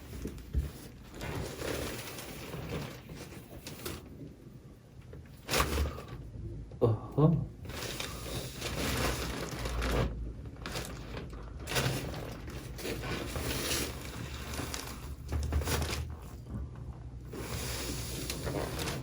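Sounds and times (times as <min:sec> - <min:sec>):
clothing rustling: 0:07.6 - 0:19.0.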